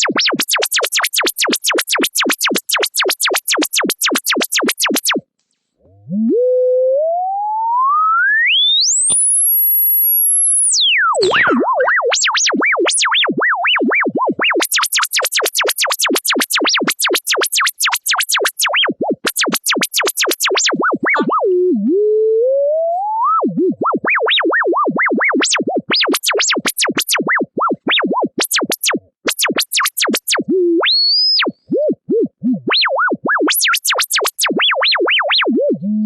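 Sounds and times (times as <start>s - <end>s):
sine tone sweeping in pitch: 6.0s - 11.9s.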